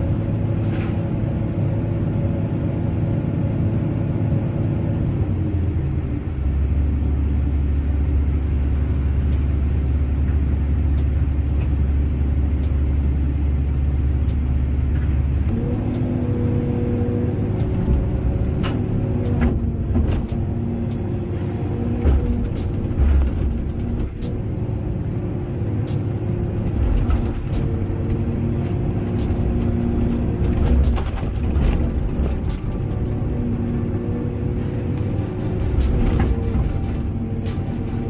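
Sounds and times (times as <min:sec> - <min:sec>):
excavator diesel engine running: 0:00.0 - 0:38.0
steady whining tone: 0:14.1 - 0:38.0.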